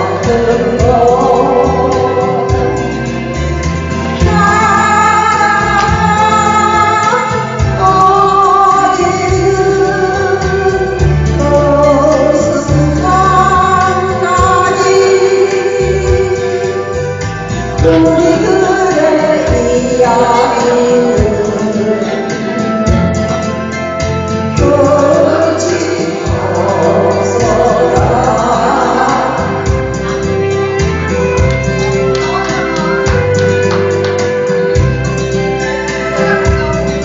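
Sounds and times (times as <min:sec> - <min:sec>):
woman singing with vibrato: 0:00.0 - 0:03.0, 0:04.1 - 0:23.3, 0:24.5 - 0:30.5
instrumental accompaniment with bass: 0:00.0 - 0:37.0.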